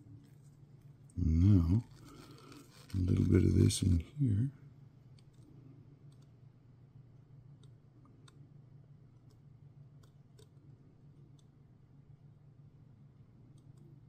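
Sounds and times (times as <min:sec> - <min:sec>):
low room hum: 0:00.0 - 0:14.0
faint small clicks: 0:06.1 - 0:06.4.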